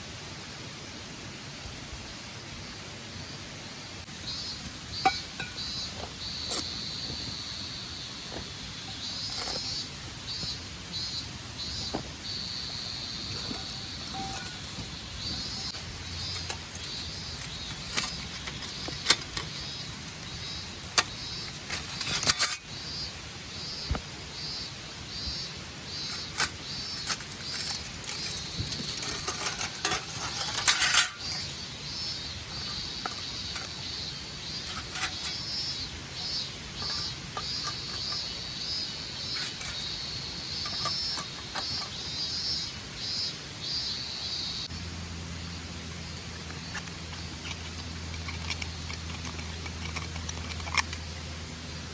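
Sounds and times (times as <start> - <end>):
high insect chirping: 4.0 - 51.4
camp gear clinking and rustling: 4.9 - 22.7, 25.9 - 43.3, 45.8 - 51.4.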